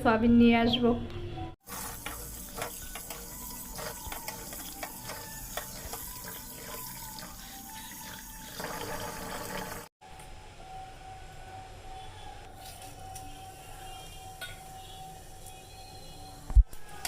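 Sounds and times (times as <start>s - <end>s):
tap water running into sink: 8.6s - 9.9s.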